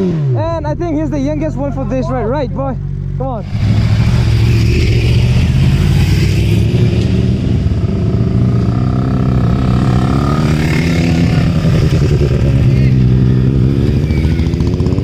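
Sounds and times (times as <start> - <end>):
motorcycle engine running: 2.8 - 15.0
rushing noise: 3.4 - 15.0.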